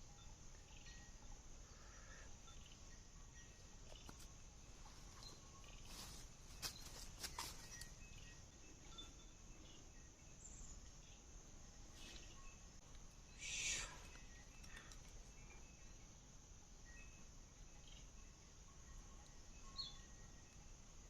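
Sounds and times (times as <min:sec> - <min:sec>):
faint bird chirps: 0:00.0 - 0:21.0
insect drone: 0:00.0 - 0:21.0
sharp clicks: 0:14.0 - 0:15.2.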